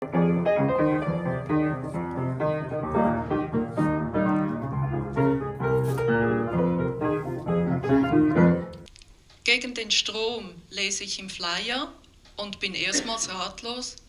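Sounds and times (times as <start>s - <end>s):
solo piano melody: 0.0s - 8.9s.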